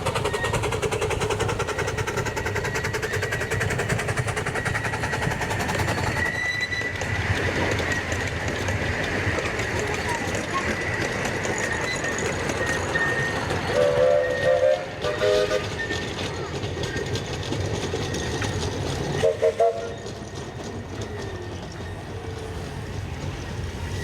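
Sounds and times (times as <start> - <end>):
train running rumble: 0.0 - 24.0
train whistle blasts: 13.7 - 15.8, 19.2 - 20.1.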